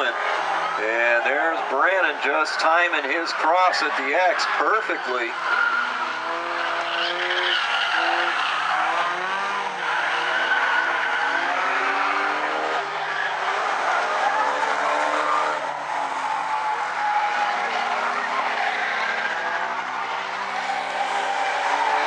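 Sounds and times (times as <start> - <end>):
race car engines revving: 0.0 - 22.0
track noise: 0.0 - 22.0.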